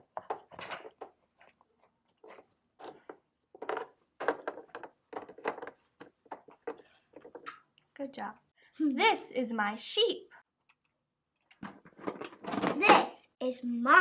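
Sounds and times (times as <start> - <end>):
wooden puzzle pieces clacking: 2.2 - 7.7.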